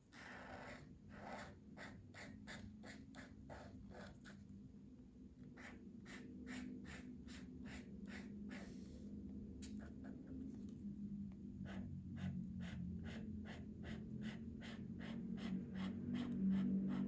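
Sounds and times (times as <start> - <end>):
pencil scratching on paper: 0.2 - 4.4, 5.6 - 9.0, 11.6 - 17.0.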